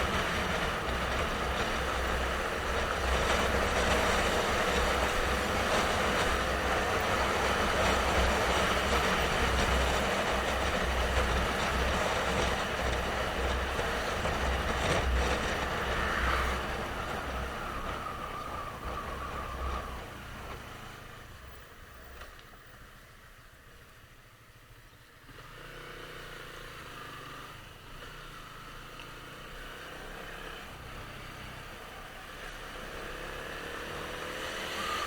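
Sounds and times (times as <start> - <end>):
wind buffeting microphone: 0.0 - 21.5
motorcycle running: 0.0 - 35.0.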